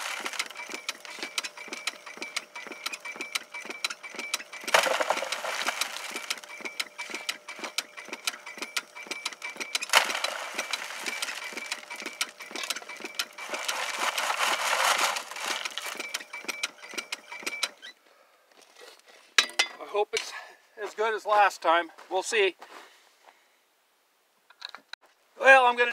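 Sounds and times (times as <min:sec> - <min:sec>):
bellows machine clattering: 0:00.0 - 0:17.8
gritty rushing of material: 0:04.7 - 0:06.3, 0:13.4 - 0:15.9.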